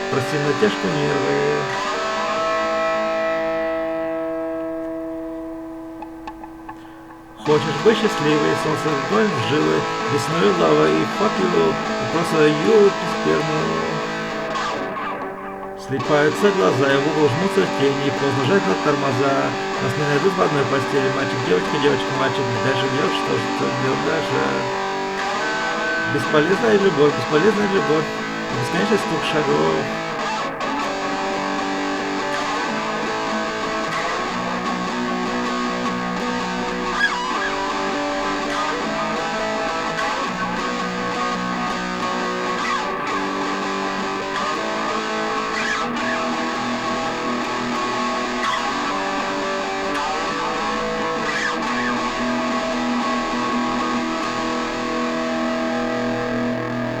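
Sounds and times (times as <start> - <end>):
rock guitar chords: 0.0 - 57.0.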